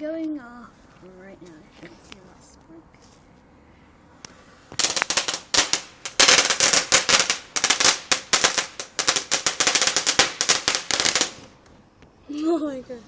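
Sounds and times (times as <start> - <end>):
fireworks cracking and banging: 4.7 - 11.6.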